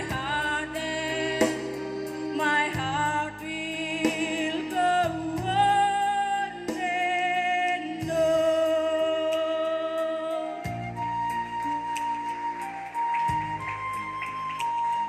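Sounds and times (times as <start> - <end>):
instrumental backing track: 0.0 - 15.0.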